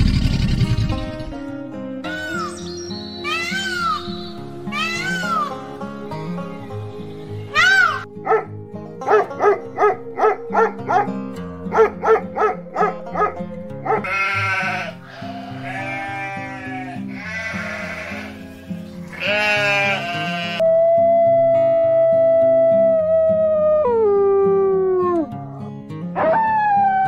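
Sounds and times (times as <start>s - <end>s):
background music: 0.0s - 27.0s
dog barking high: 7.6s - 8.5s, 9.1s - 11.1s, 11.7s - 14.2s
goats bleating: 14.0s - 20.6s.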